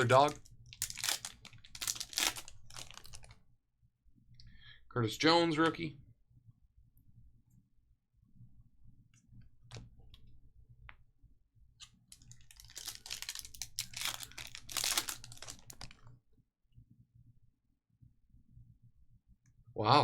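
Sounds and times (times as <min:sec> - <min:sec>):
foil pack crinkling: 0:00.0 - 0:03.4, 0:12.1 - 0:16.1.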